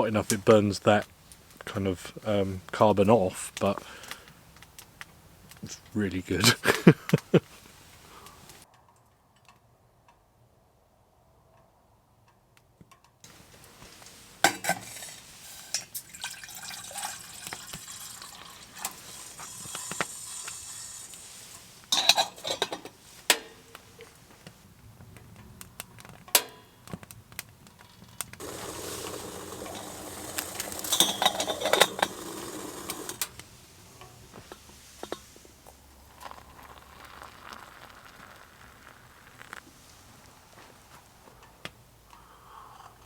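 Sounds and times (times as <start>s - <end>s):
hot water pouring: 13.3s - 24.5s, 27.7s - 41.2s
spoon clinking cookware: 21.5s - 22.9s, 28.4s - 33.2s.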